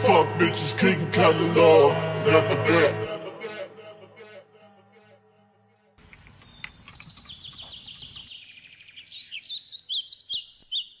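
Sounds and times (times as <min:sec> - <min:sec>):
birds chirping: 0:06.0 - 0:11.0.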